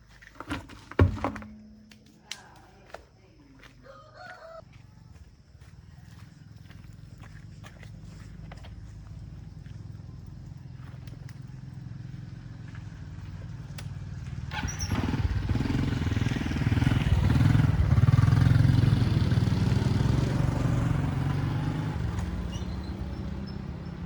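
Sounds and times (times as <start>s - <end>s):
vehicle engine running: 5.2s - 24.0s.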